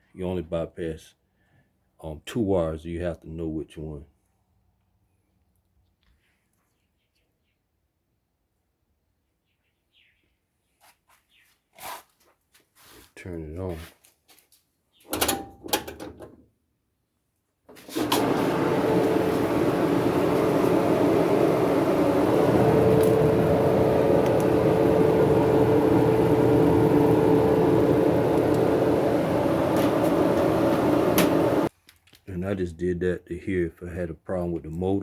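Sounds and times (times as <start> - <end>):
dryer motor humming: 17.8 - 31.7.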